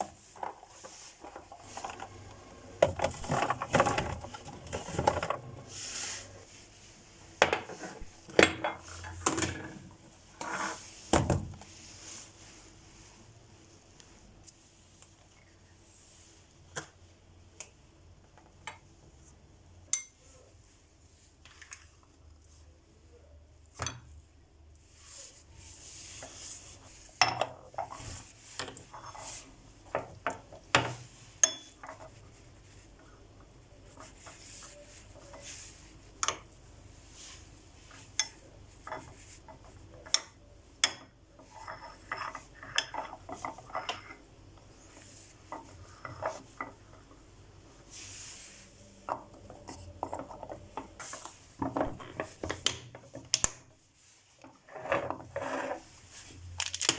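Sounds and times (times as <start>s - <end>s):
plastic containers clicking and clattering: 1.3s - 5.5s.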